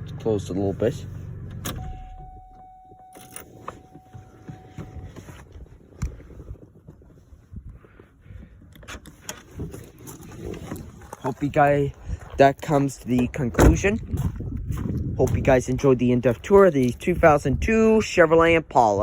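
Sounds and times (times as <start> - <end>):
car engine idling: 0.0 - 5.3
steady electronic tone: 1.8 - 5.2.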